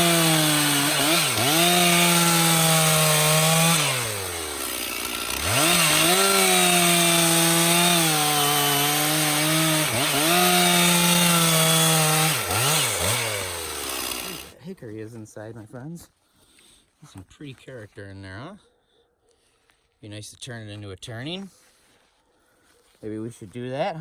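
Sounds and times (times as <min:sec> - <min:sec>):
chainsaw cutting log: 0:00.0 - 0:14.6.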